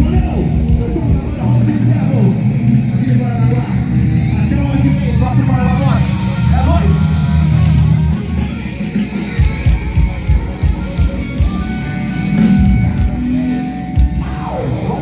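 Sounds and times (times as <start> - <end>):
heavy low drum hits: 0.0 - 2.8
live rock band playing: 0.0 - 15.0.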